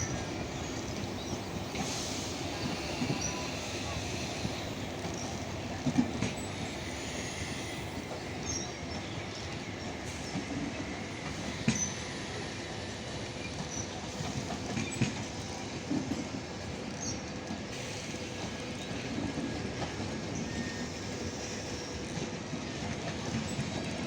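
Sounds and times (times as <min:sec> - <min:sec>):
faint wheel squeals: 0:00.0 - 0:14.3, 0:17.9 - 0:22.3
train wheels rumbling on track: 0:00.0 - 0:24.0.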